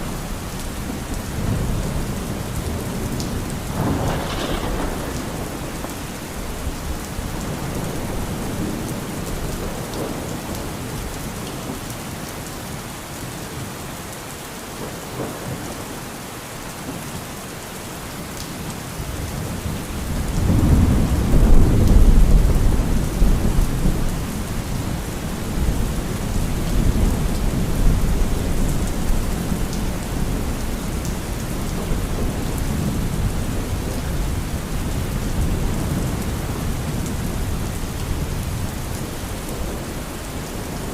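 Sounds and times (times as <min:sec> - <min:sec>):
steady rain falling: 0:00.0 - 0:40.9
low roll of thunder: 0:00.8 - 0:11.1, 0:19.2 - 0:39.9.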